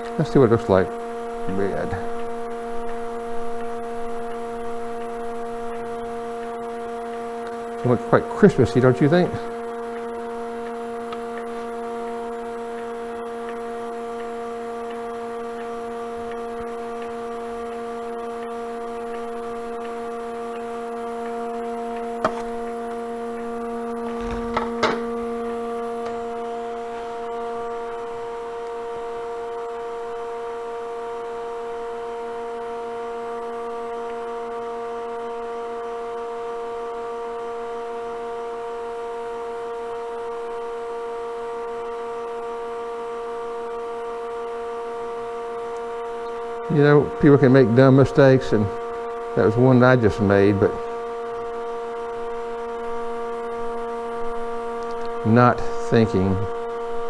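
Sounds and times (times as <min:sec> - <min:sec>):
wood lathe humming: 0:00.0 - 0:29.6.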